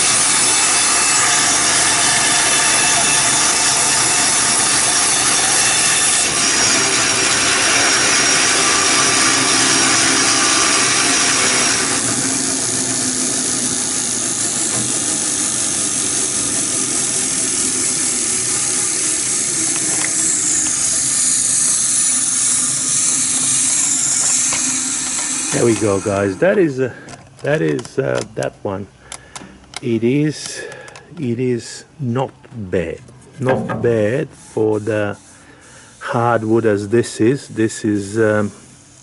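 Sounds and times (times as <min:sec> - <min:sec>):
band saw running unloaded: 0:00.0 - 0:26.4, 0:33.4 - 0:34.1
band saw cutting wood: 0:00.0 - 0:26.8.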